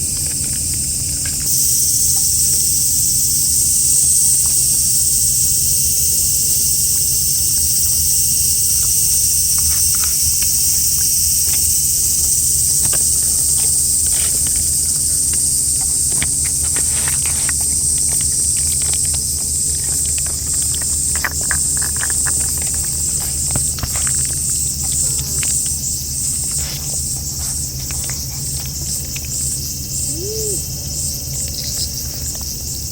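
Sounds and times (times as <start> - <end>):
insect chorus: 0.0 - 32.9
small clicks and ticks: 5.8 - 26.6.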